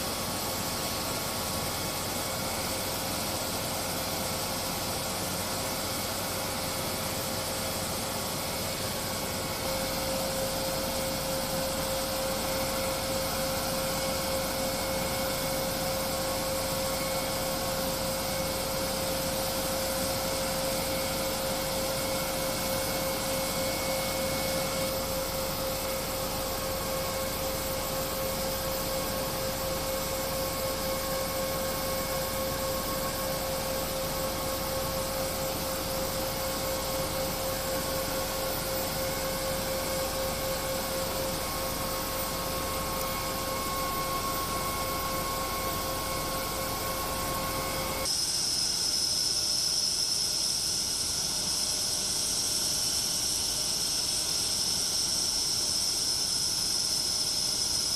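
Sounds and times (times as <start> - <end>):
jet engines whining: 5.7 - 48.2.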